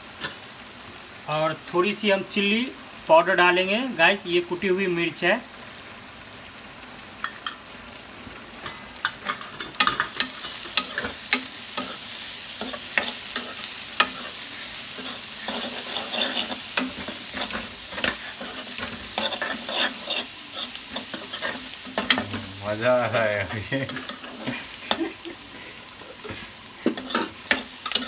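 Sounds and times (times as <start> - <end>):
onions sizzling in hot oil: 0.0 - 28.0
spatula scraping a pan: 9.1 - 22.5, 23.8 - 25.2, 26.1 - 28.0.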